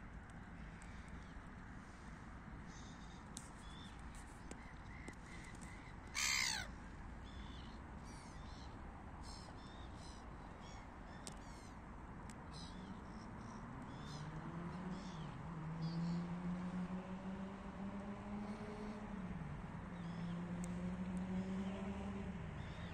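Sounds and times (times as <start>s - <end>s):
harsh bird call: 6.2s - 6.7s.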